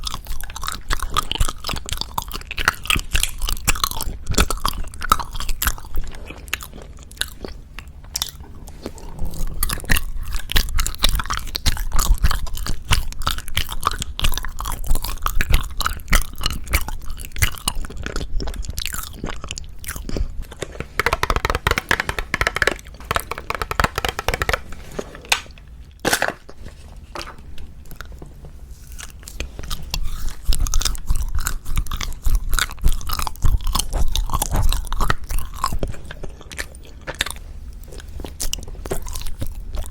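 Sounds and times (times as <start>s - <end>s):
mouth biting and chewing: 9.1s - 26.2s, 28.8s - 39.9s.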